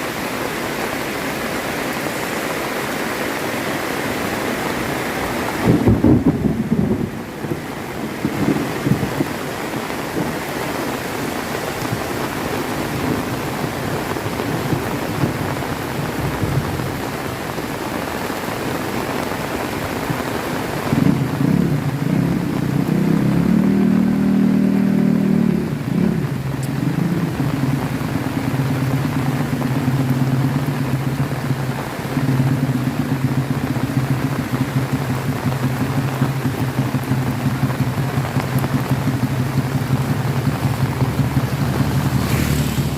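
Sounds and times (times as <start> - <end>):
heavy rain: 0.0 - 42.9
low roll of thunder: 5.6 - 10.6
vehicle engine idling: 24.2 - 42.9.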